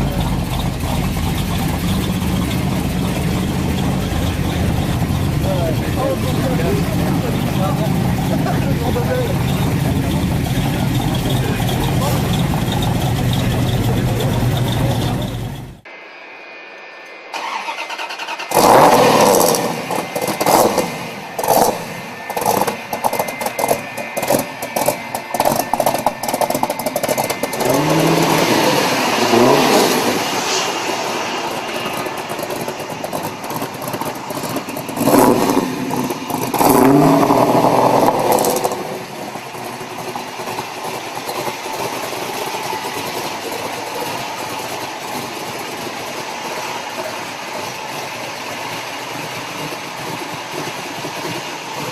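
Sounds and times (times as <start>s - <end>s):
car engine starting and revving: 0.0s - 15.9s, 17.3s - 51.9s.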